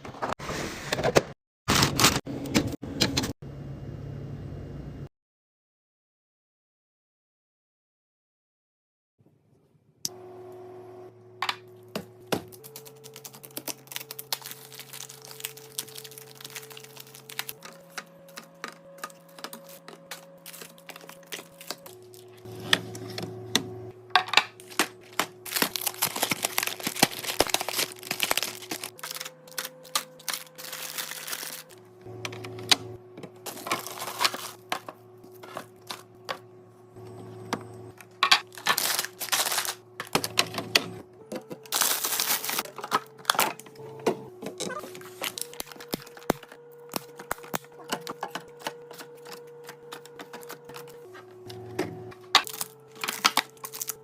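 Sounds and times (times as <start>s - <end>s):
plastic packaging handled: 12.4s - 23.3s, 24.5s - 32.4s, 33.4s - 36.4s, 38.3s - 40.6s, 41.5s - 43.6s, 44.6s - 51.3s, 52.3s - 54.0s
soft background music: 12.7s - 24.0s.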